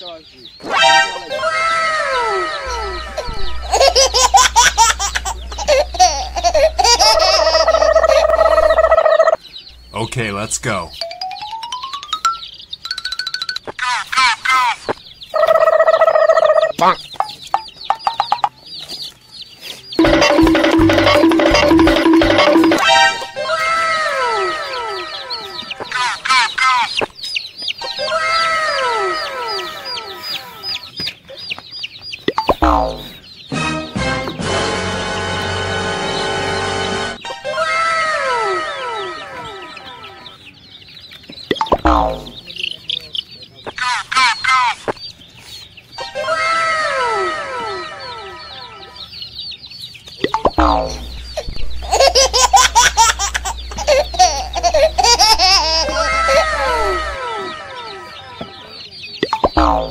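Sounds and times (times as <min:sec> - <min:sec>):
chicks peeping: 0:00.0 - 0:13.0, 0:13.6 - 0:59.9
lower falling calls: 0:00.6 - 0:13.0, 0:50.2 - 0:59.9
baby giggling: 0:02.2 - 0:09.0, 0:51.2 - 0:58.1.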